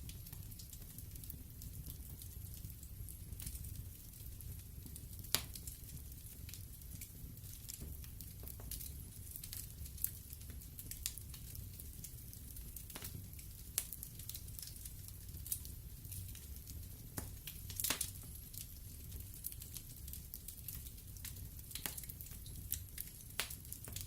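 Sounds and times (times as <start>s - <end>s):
fire pops and snaps: 0.0s - 24.0s
low rumble of flames: 0.0s - 24.0s.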